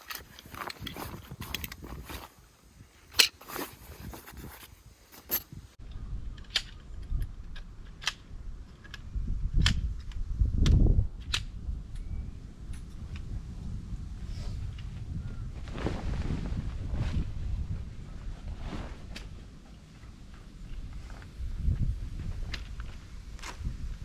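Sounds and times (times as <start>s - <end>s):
camping gear clicking and knocking: 0.0s - 5.6s.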